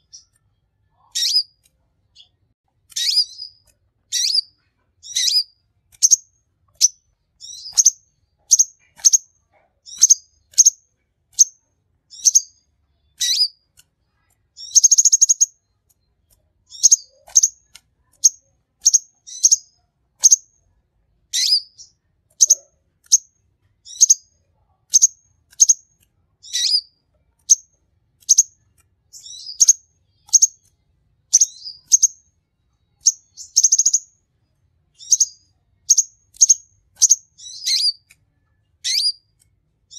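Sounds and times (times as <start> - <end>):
buzzy bird trills: 0.0 - 1.6, 2.9 - 12.5, 13.1 - 13.6, 24.9 - 26.9, 35.0 - 38.1, 38.8 - 39.3
bird chirping: 0.0 - 20.6, 21.3 - 39.9.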